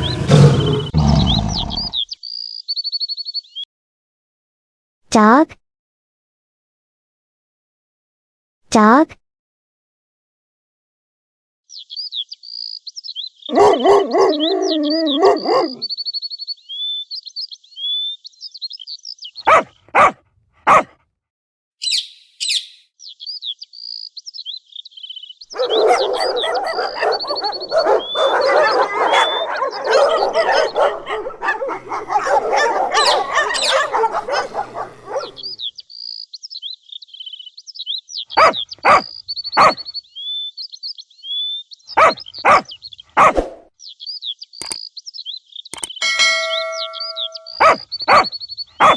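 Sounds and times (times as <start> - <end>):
dog barking: 0.0 - 1.9, 13.5 - 15.9, 19.4 - 21.0, 25.5 - 35.6, 38.4 - 39.8, 42.0 - 43.6, 46.9 - 48.9
birds chirping: 0.0 - 2.1, 13.4 - 16.1, 19.3 - 20.8, 25.1 - 36.2, 38.2 - 40.5, 41.2 - 43.3, 45.7 - 48.9.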